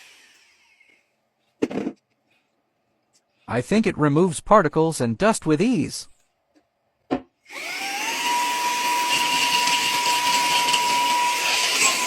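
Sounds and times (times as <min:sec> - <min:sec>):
handheld vacuum cleaner whine: 0:00.0 - 0:01.1, 0:07.4 - 0:12.0.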